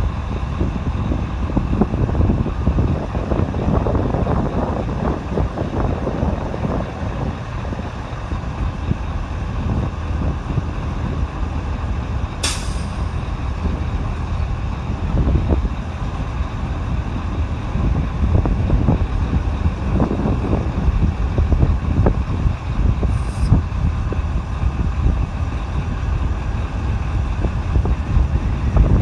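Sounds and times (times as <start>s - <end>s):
jet engines rumbling: 0.0s - 29.0s
sharp hiss: 12.4s - 13.4s, 23.1s - 23.6s.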